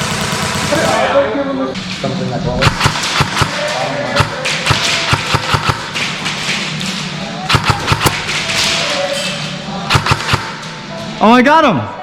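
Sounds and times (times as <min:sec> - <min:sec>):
airsoft guns firing: 0:00.0 - 0:01.2, 0:02.6 - 0:09.1, 0:09.8 - 0:10.8.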